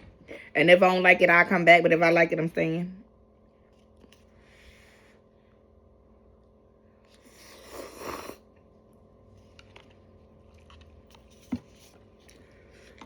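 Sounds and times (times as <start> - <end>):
soft chewing: 6.9 - 13.0
person slurping noodles: 7.2 - 8.5.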